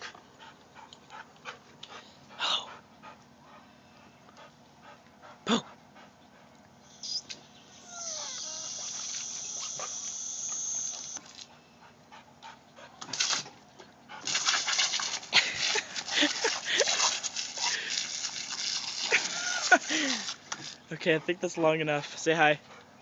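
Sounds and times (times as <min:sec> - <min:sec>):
puppy whining: 0:06.9 - 0:11.2
hose spraying water: 0:07.9 - 0:11.4, 0:14.3 - 0:20.8.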